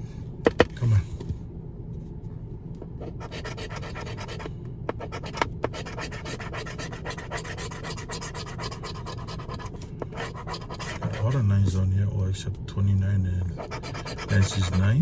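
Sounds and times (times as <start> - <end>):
lottery ticket being scratched: 3.0 - 11.8, 13.5 - 15.0.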